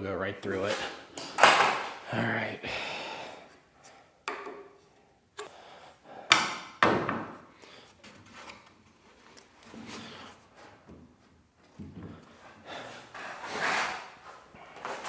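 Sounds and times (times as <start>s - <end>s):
nail gun firing into wood: 6.3s - 7.4s.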